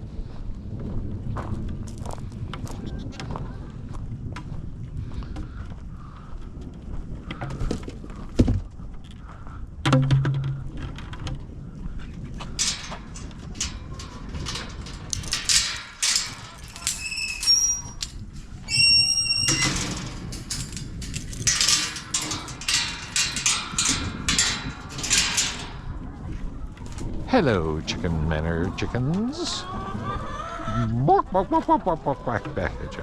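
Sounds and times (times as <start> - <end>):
thud: 9.8 - 10.9
handling noises: 12.1 - 27.2
short high-pitched squeaks: 16.6 - 19.9.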